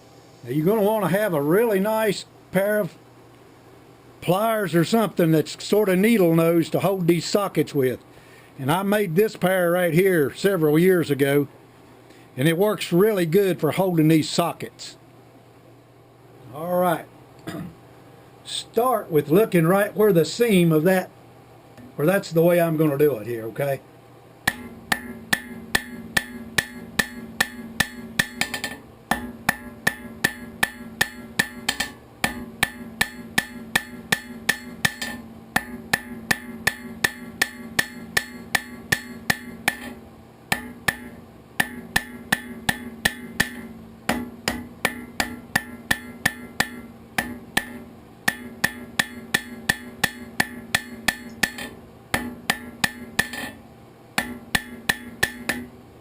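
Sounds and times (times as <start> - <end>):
hammer striking steel on anvil: 24.5 - 53.6, 54.2 - 55.8.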